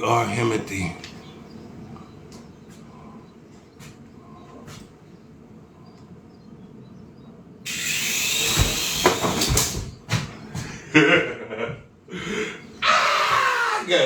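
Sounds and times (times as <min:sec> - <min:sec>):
rc helicopter motor and rotors: 0:07.7 - 0:09.8.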